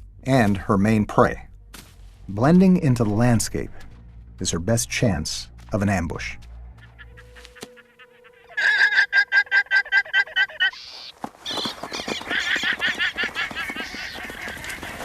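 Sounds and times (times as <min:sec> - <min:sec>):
shrill bleating alarm calls: 0:06.8 - 0:15.0.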